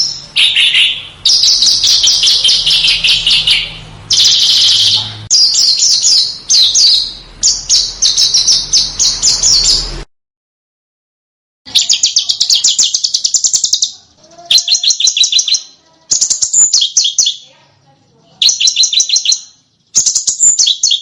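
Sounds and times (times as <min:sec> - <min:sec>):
songbirds chirping: 0:00.0 - 0:10.1, 0:11.7 - 0:21.0.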